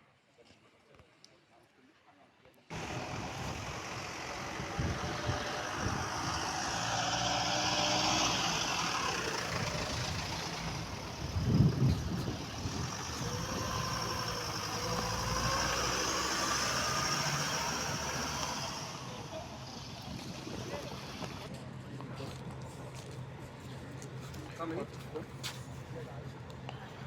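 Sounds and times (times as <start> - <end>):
motor engine running: 2.7 - 21.5.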